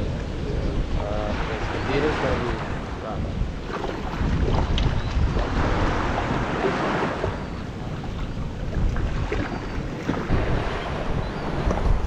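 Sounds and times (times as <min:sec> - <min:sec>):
sea water rushing: 0:00.0 - 0:12.0
wind buffeting microphone: 0:00.0 - 0:12.0.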